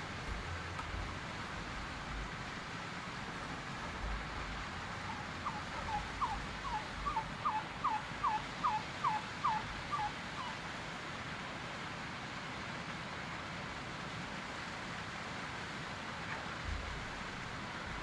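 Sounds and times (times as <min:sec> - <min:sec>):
steady background hiss: 0:00.0 - 0:18.0
wild turkey yelps: 0:04.8 - 0:10.7.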